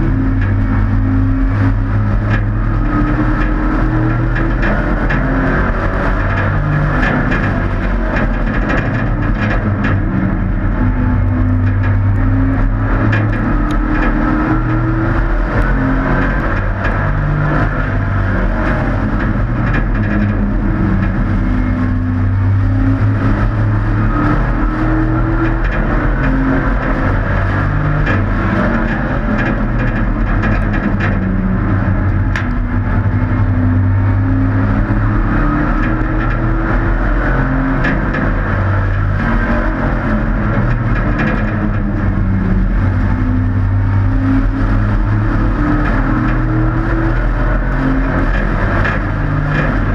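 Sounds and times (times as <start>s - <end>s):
model race truck engines: 0.0s - 49.9s.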